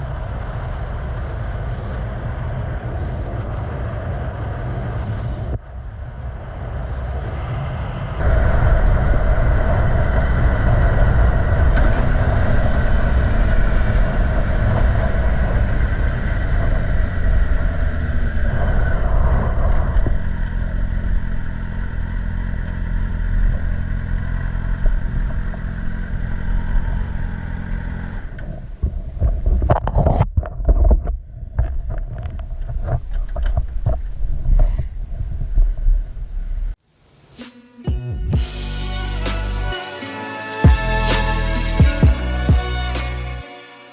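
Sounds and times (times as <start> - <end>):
motorcycle engine at speed: 0.0 - 29.8
wind buffeting: 0.0 - 36.8
wind noise: 0.0 - 36.8.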